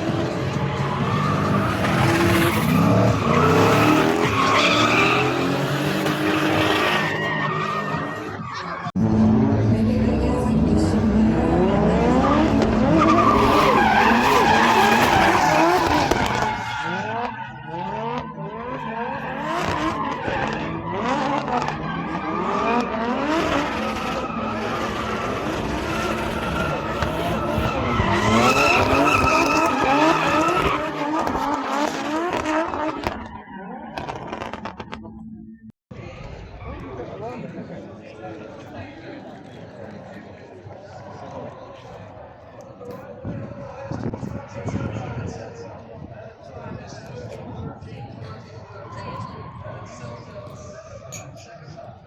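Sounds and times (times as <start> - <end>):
car engine revving: 0.0 - 35.2.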